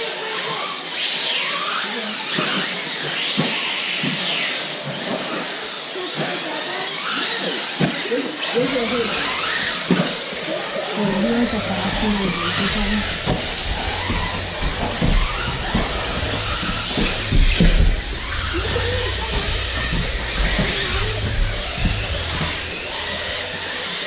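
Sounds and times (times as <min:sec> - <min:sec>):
electric rc cars running: 0:00.0 - 0:24.0
knocks: 0:11.1 - 0:23.7.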